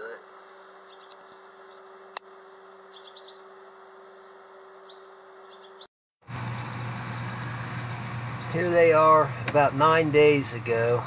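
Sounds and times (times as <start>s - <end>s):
fledgling birds chirping: 0.0s - 10.4s
steady low hum: 6.2s - 11.0s.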